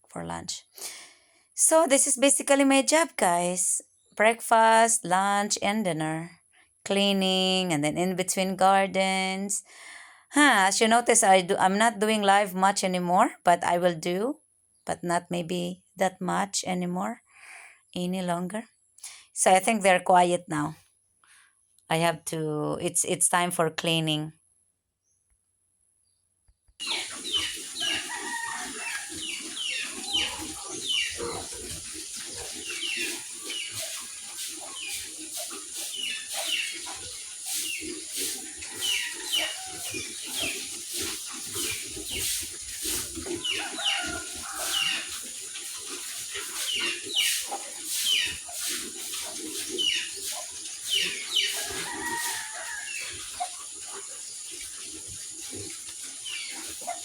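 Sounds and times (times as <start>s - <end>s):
chickens clucking: 26.8s - 57.0s.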